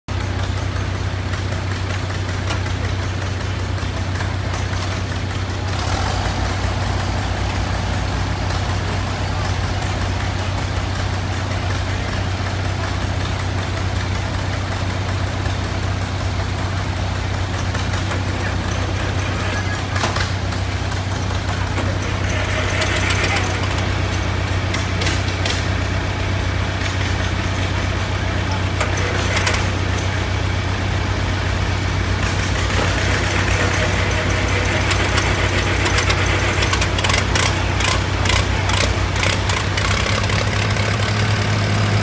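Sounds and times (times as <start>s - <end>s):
tractor engine idling: 0.1s - 42.0s.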